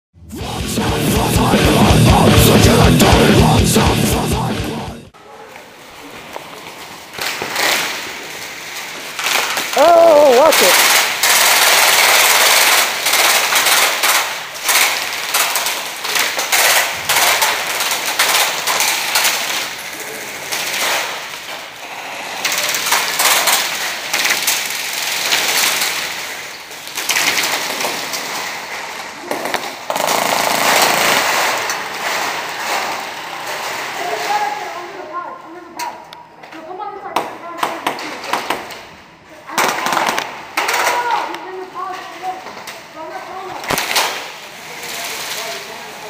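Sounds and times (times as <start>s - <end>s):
airsoft guns firing bursts: 10.3s - 19.8s, 29.4s - 31.7s, 39.6s - 40.7s.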